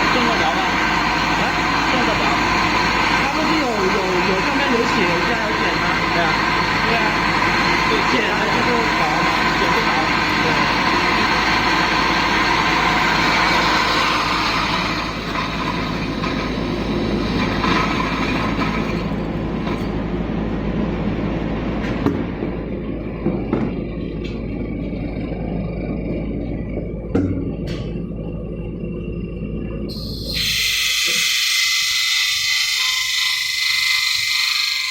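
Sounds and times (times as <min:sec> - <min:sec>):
disc grinder running: 0:00.0 - 0:20.2, 0:29.9 - 0:34.9.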